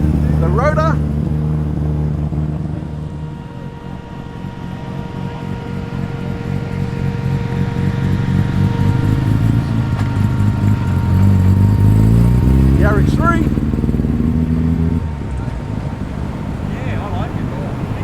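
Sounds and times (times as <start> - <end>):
car engines running at low speed: 0.0 - 18.0.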